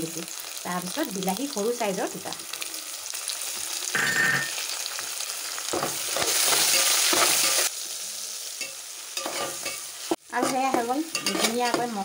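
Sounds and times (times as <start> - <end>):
vegetables sizzling in hot oil: 0.0 - 12.0
metal spatula scraping a pot: 9.2 - 12.0.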